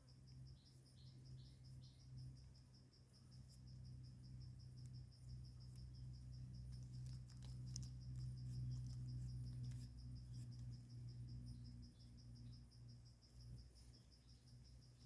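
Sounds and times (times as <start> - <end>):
cricket chirping trill: 0.0 - 15.0
low steady hum: 0.0 - 15.0
faint clicks and rustles: 6.6 - 10.9.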